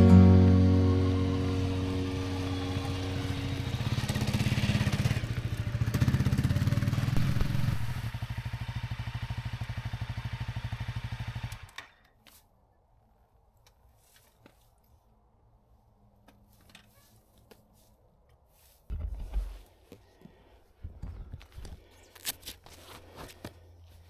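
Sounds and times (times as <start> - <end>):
motorcycle engine idling: 0.0 - 11.5.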